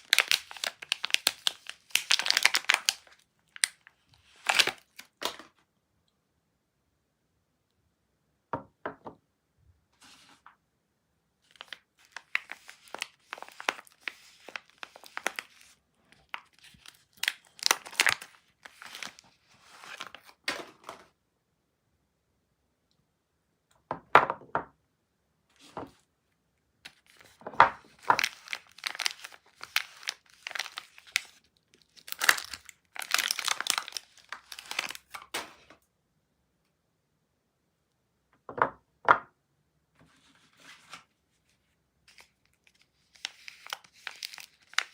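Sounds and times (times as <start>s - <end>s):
wrapper crinkling and tearing: 0.0s - 5.5s, 11.5s - 20.9s, 26.9s - 35.6s, 42.1s - 44.9s.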